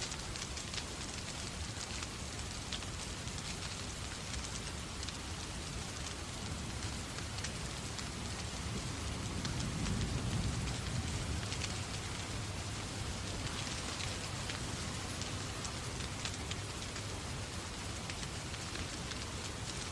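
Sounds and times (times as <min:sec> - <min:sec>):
fireplace fire crackling: 0:00.0 - 0:19.9
steady rain: 0:00.0 - 0:19.9.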